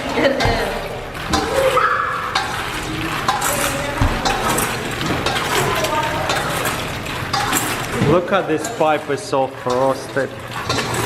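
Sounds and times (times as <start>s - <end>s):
cutlery and dishes clinking: 2.3s - 8.9s, 10.6s - 11.0s.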